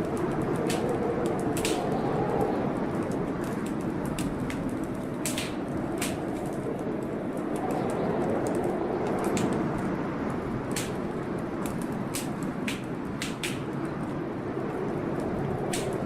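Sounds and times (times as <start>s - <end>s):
storm rain: 0.0s - 16.0s
wood fire crackling: 0.0s - 16.0s
sharp pops of fire: 0.1s - 2.0s, 3.2s - 6.6s, 10.6s - 14.0s, 15.6s - 16.0s.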